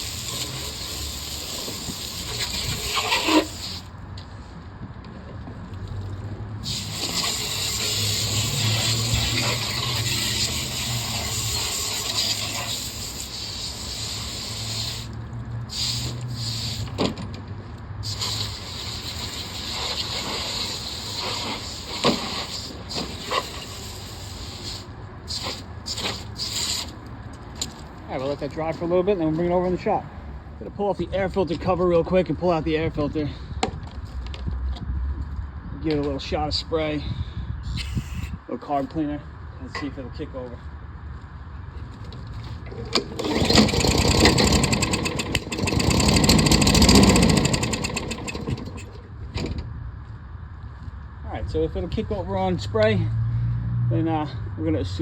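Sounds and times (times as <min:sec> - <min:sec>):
water spray hissing: 0:00.0 - 0:03.9, 0:06.6 - 0:17.0, 0:18.0 - 0:27.0
lawn mower engine running roughly: 0:42.7 - 0:49.1.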